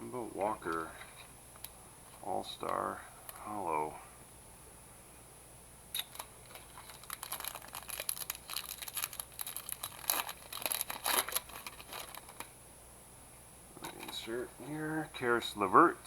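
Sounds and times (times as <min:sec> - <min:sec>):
foil card pack crackling: 0:06.0 - 0:12.5.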